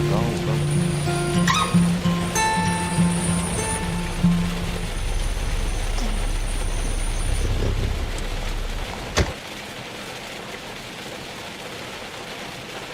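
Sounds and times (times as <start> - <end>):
low rumble of car: 0.0 - 9.8
rain: 0.0 - 12.9.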